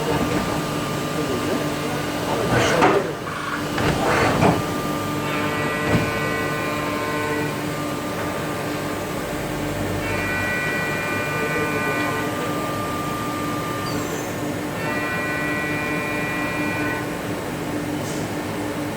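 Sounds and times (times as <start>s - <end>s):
high-pitched machine whine: 0.0s - 17.5s
machining center hum: 0.0s - 18.9s.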